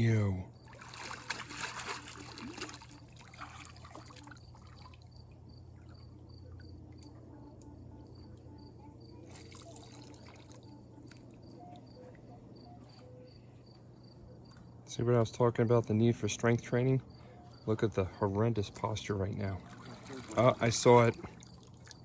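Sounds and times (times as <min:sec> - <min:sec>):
insects chirping: 0:00.0 - 0:22.0
water trickling and sloshing: 0:00.5 - 0:07.3, 0:09.2 - 0:12.2, 0:18.6 - 0:22.0.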